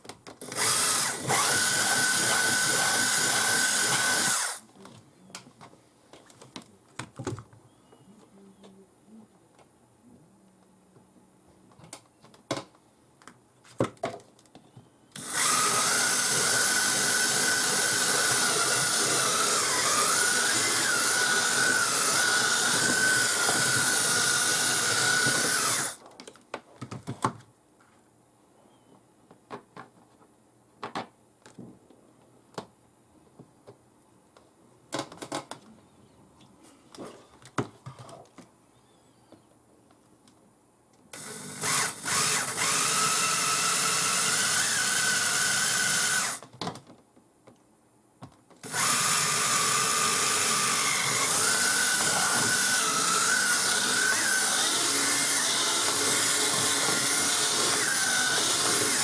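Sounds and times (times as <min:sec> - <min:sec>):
power tool whining: 0:00.4 - 0:04.6, 0:15.2 - 0:26.0, 0:41.2 - 0:46.4, 0:48.6 - 0:59.0.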